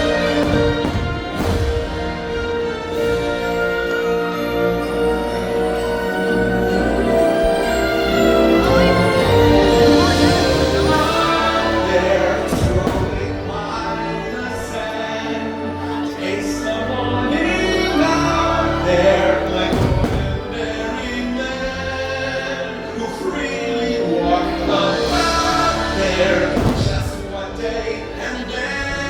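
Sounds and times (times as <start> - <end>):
firework bursts: 0.0 - 3.1, 12.4 - 13.6, 19.7 - 21.0, 26.4 - 27.9
orchestral music with choir: 0.0 - 29.0.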